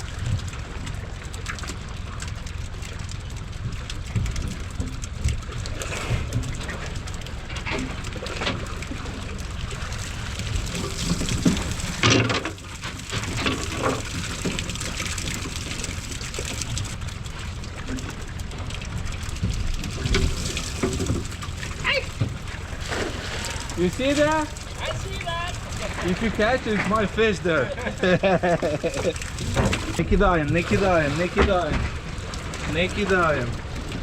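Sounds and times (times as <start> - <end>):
water splashing and dripping: 0.0 - 34.0
steady low rumble: 13.3 - 34.0.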